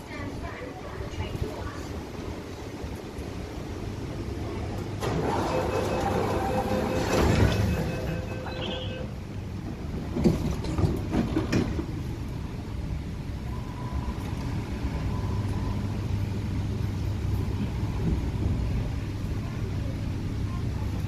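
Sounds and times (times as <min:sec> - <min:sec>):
low hum of train: 0:00.0 - 0:21.0
train carriage clunks: 0:04.7 - 0:12.4.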